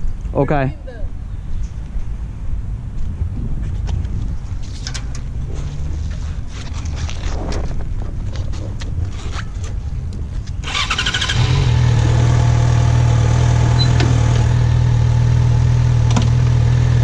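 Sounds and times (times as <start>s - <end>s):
wind rumbling on microphone: 0.0s - 12.6s
motorcycle starter cranking: 10.6s - 12.0s.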